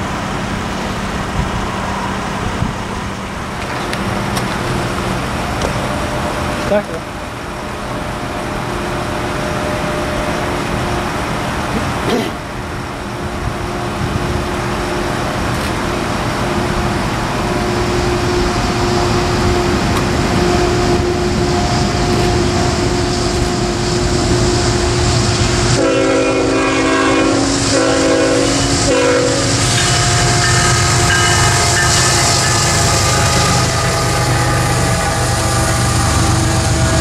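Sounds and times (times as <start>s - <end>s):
train rumbling with whine: 0.0s - 37.0s
train horn blasts: 24.4s - 37.0s.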